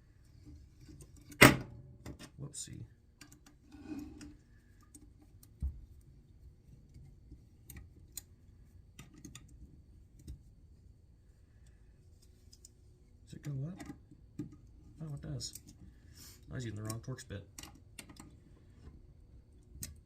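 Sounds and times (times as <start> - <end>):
light metal clicks and taps: 12.1 - 15.9, 16.6 - 18.4.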